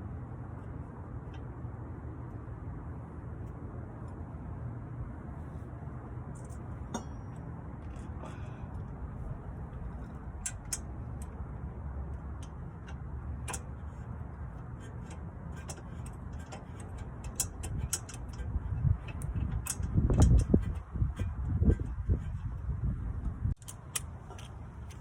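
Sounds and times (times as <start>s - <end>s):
light metallic clicks: 10.0s - 11.4s.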